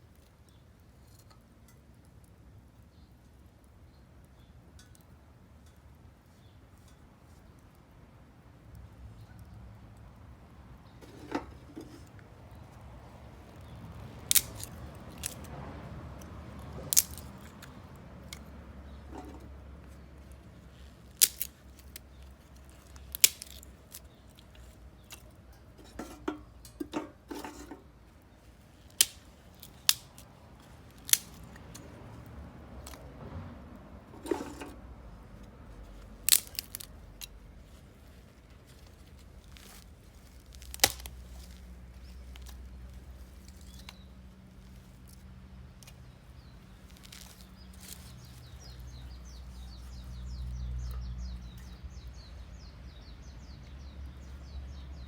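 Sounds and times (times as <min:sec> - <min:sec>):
sharp wood cracks and snaps: 0:13.5 - 0:25.4, 0:28.7 - 0:33.1, 0:36.0 - 0:51.8.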